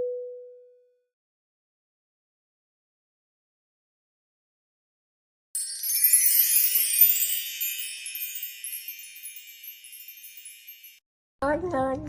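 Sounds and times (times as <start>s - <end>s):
high tinkling chimes: 5.6s - 11.0s.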